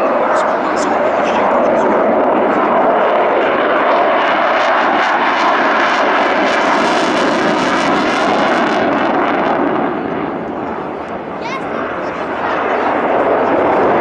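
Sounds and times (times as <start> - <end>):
airplane engine roar: 0.0 - 14.0.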